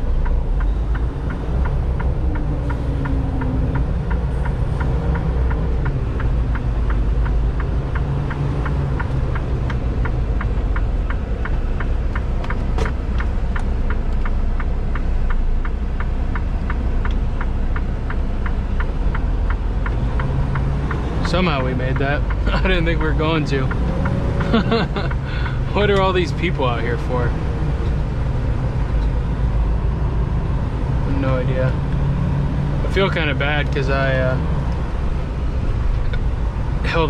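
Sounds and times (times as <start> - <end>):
truck diesel engine rumbling: 0.0 - 37.0
turn signal clicking: 0.0 - 37.0.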